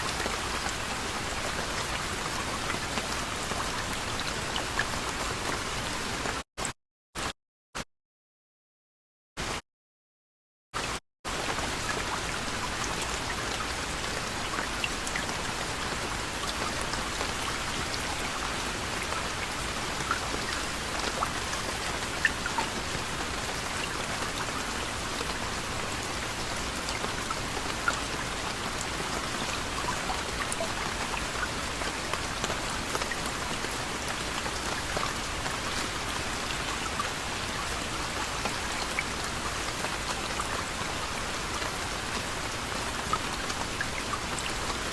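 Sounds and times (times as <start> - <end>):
raindrops ticking on a surface: 0.1 - 6.4, 11.3 - 44.9
soft rain hiss: 11.3 - 44.9.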